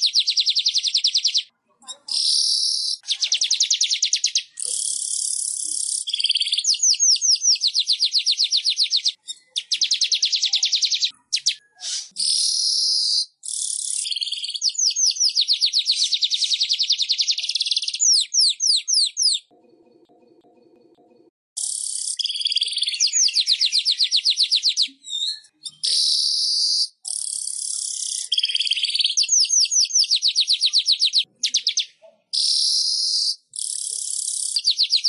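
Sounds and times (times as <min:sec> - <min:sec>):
weaver bird trilling: 0:02.2 - 0:19.4.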